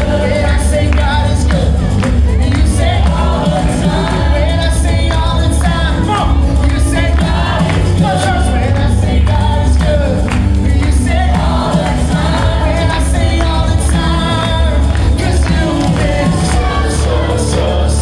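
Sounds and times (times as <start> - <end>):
band with heavy bass: 0.0 - 18.0
choir singing: 0.0 - 18.0.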